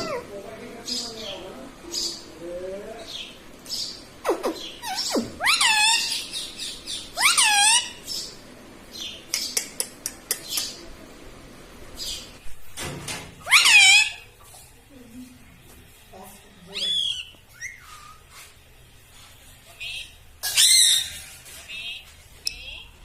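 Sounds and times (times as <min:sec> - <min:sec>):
parrot squawking: 0:00.0 - 0:00.4, 0:04.2 - 0:08.4, 0:13.4 - 0:14.5, 0:16.7 - 0:18.4, 0:19.8 - 0:22.9
parrot whistling: 0:04.3 - 0:08.1, 0:13.5 - 0:14.2, 0:16.8 - 0:18.2
parrot chirps and clicks: 0:09.2 - 0:10.8, 0:22.4 - 0:22.9.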